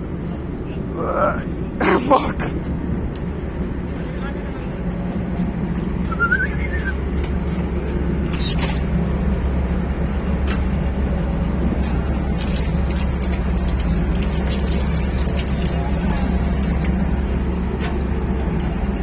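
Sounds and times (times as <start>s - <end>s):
short loud hiss: 8.3s - 8.8s
wavering chirp: 8.3s - 8.8s.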